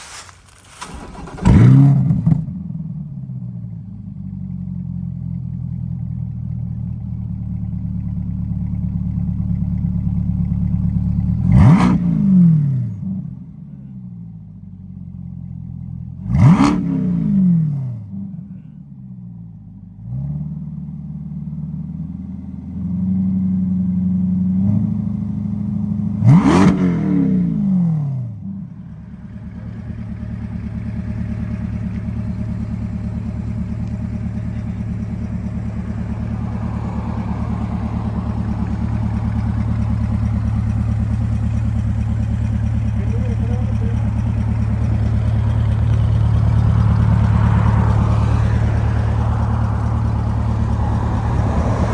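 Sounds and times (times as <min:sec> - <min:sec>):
car engine revving and idling: 0:00.8 - 0:51.9.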